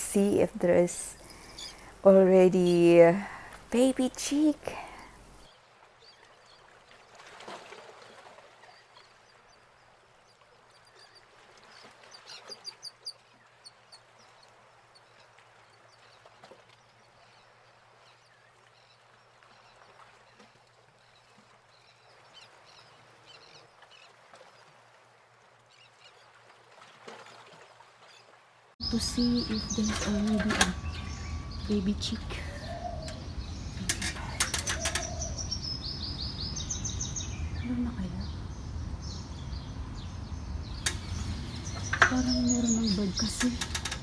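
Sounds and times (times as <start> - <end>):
faint outdoor ambience: 0.0 - 5.5, 28.8 - 44.0
high short bird chirps: 28.8 - 44.0.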